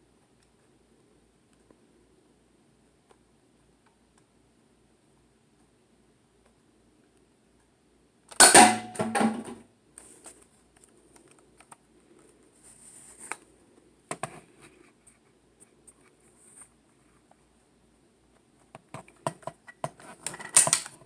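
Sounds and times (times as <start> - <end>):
rustling: 9.2 - 17.6.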